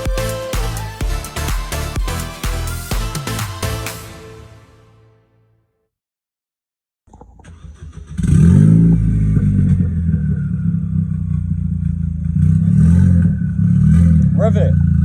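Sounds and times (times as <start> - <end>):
car engine starting and idling: 7.1 - 15.0.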